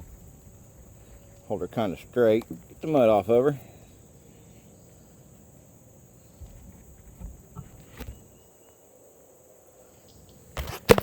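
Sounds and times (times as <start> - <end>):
insect chirring: 0.0 - 11.0
sharp knock and clatter: 10.6 - 11.0.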